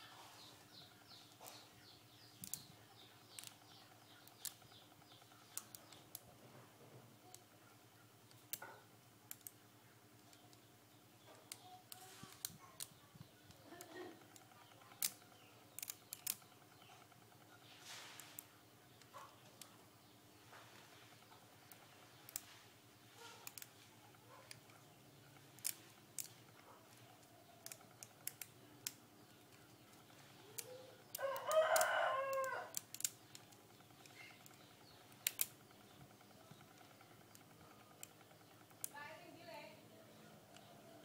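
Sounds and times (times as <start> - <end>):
rooster crowing: 31.2 - 32.8.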